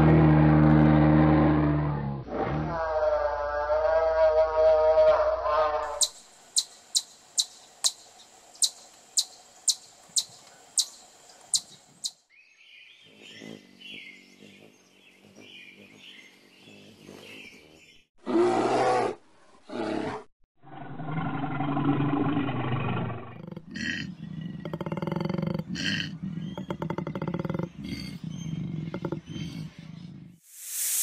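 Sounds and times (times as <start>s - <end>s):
bear growling: 0.1s - 6.0s, 18.2s - 30.4s
hummingbird chirping: 5.9s - 18.1s, 23.4s - 30.3s
chipmunk chip calls: 6.0s - 12.2s.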